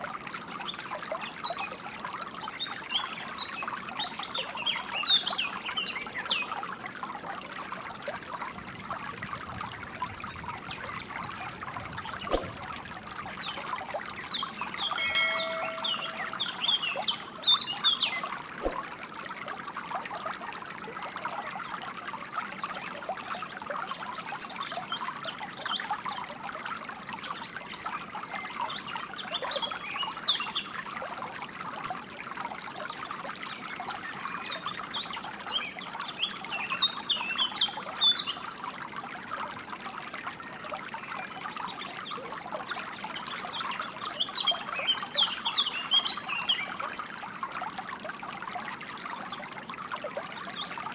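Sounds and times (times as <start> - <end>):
stream trickling: 0.0 - 50.9
songbirds chirping: 10.4 - 18.8.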